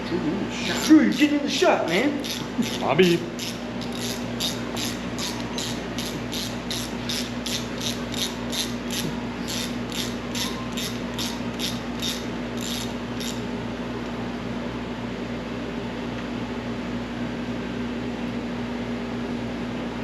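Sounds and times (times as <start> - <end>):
steady background hum: 0.0 - 20.0
hand ratchet clicking: 0.8 - 13.4.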